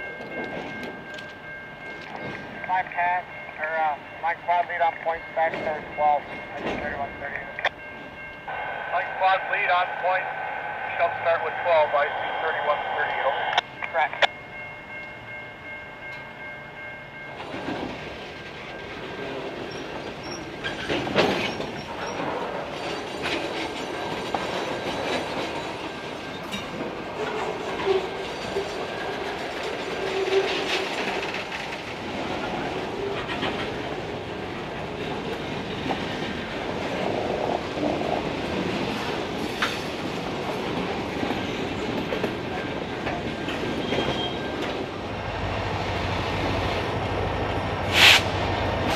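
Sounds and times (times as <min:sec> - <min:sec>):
freight train rolling past: 0:00.0 - 0:48.9
wheel squeals: 0:43.7 - 0:44.6.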